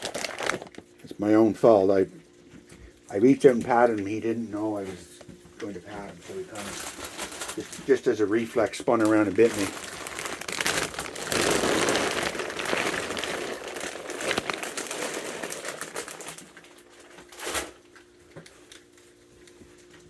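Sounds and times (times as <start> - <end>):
raccoons chewing peanuts: 12.2 - 20.0.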